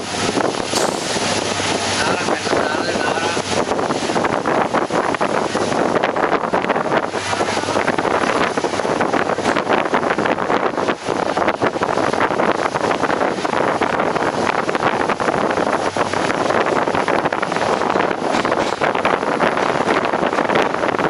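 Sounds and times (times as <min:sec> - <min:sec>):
wind buffeting microphone: 0:00.0 - 0:21.0
train wheels on track: 0:00.2 - 0:06.0
train coach rattling: 0:00.2 - 0:21.0.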